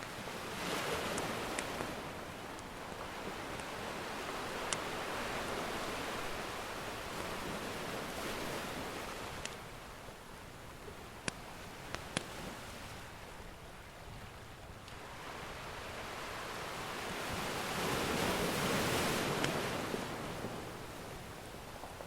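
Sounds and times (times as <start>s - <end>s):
ocean wave surging: 0.0s - 9.6s, 15.0s - 21.6s.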